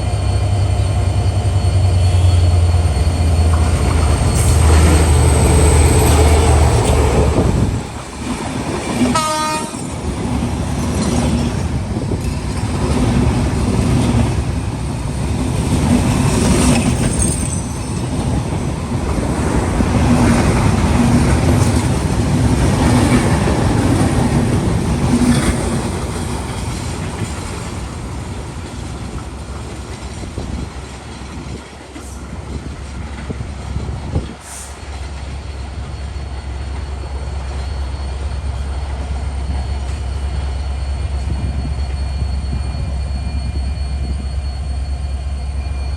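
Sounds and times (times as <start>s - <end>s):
diesel locomotive rumble: 0.0s - 45.9s
train horn blast: 9.1s - 9.9s.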